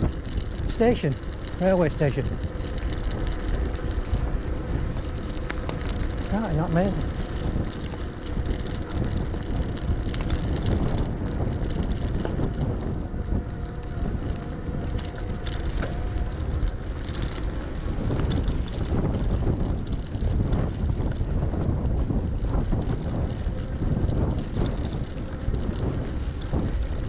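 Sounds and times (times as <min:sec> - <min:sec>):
light clicks and rattles: 0:00.0 - 0:21.3
bike tyres rumbling on track: 0:00.0 - 0:27.0
wind on microphone: 0:00.0 - 0:27.0.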